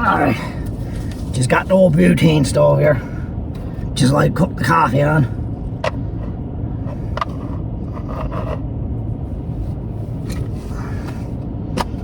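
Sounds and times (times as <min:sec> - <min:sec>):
car running with heater: 0:00.0 - 0:12.0
sharp clicks and scrapes: 0:06.9 - 0:08.6.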